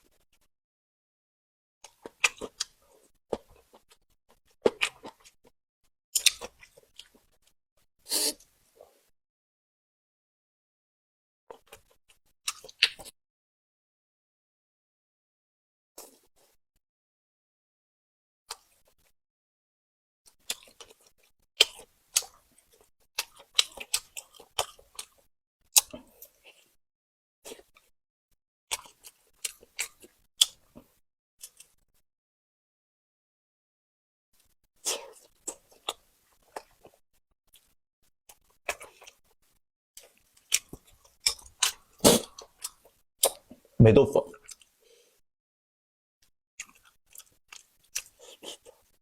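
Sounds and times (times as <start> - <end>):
chewing with crunches: 1.8 - 5.5, 6.2 - 7.6, 11.5 - 13.2, 20.3 - 26.8, 27.5 - 27.9, 28.7 - 31.8, 34.4 - 43.7, 44.4 - 45.0, 46.6 - 49.0.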